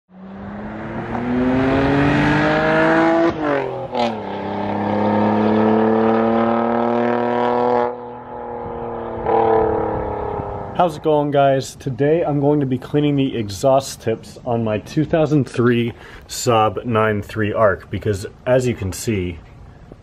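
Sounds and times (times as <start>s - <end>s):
car engine accelerating: 0.1s - 11.3s.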